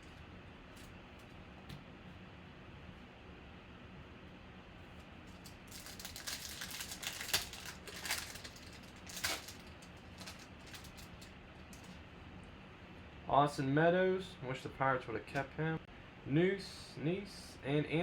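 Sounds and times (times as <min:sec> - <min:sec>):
cards clicking and rustling: 0:05.3 - 0:12.0.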